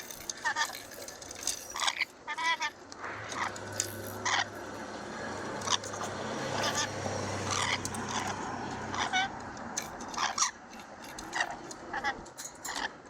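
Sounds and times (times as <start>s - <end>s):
parrot chirping: 1.8s - 9.3s
low steady hum: 2.9s - 8.6s.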